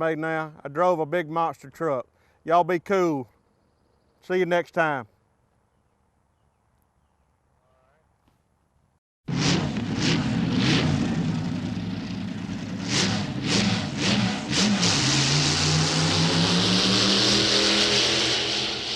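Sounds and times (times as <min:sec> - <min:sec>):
truck engine revving: 0:09.3 - 0:18.9.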